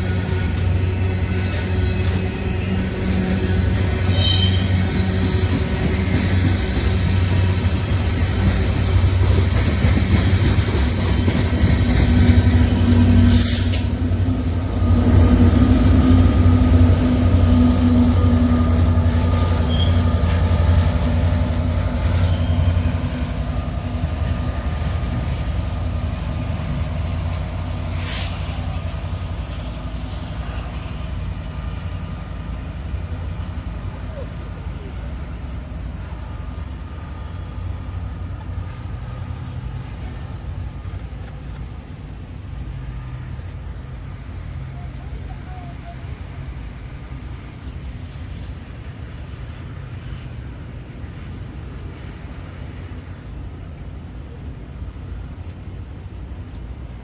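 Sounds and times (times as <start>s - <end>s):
train wheels rumbling on rails: 0.0s - 57.0s
faint thin squeal: 4.0s - 5.5s, 19.4s - 20.2s.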